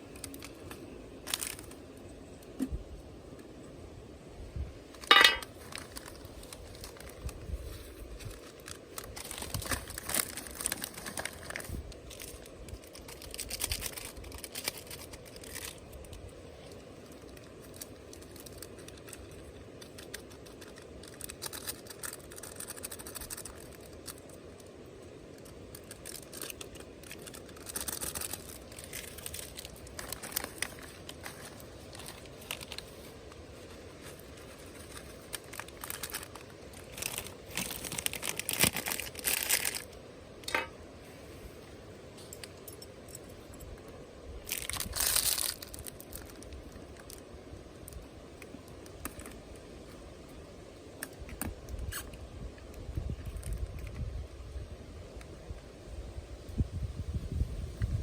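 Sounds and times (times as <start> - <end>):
rustling and crinkling: 0.0 - 3.7, 4.8 - 54.4.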